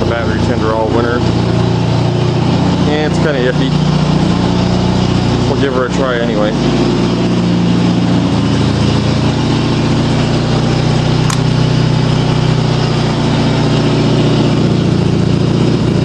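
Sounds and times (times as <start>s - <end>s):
lawn tractor engine idling: 0.0s - 16.0s
sharp click: 11.2s - 11.5s.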